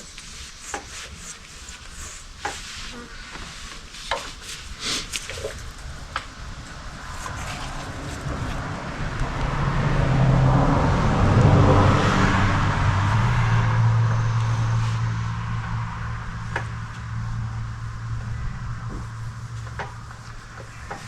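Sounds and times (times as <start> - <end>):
motor vehicle passing: 5.4 - 21.0.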